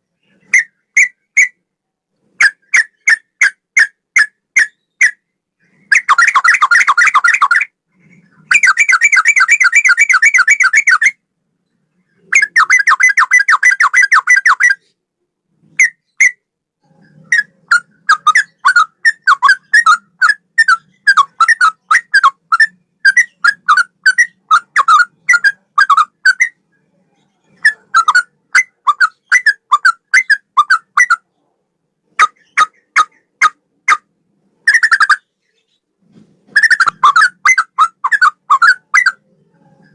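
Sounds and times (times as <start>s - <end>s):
bird trilling and whistling: 2.4s - 7.7s, 8.4s - 11.2s, 12.3s - 14.9s, 15.8s - 16.4s, 17.0s - 26.6s, 27.5s - 31.2s, 32.2s - 34.1s, 34.7s - 35.3s, 36.5s - 39.9s.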